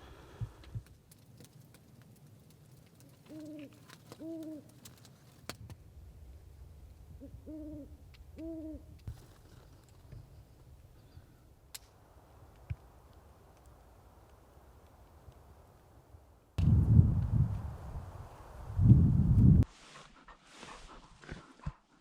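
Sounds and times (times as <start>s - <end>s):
owl hooting: 3.3s - 4.7s, 7.2s - 8.9s
faint sharp snaps: 11.7s - 15.5s.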